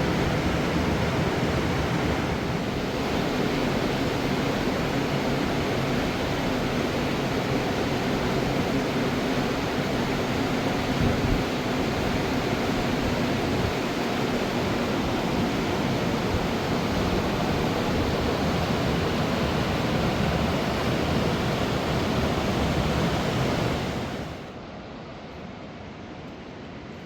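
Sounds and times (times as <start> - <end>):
river water rushing: 11.6 - 24.5.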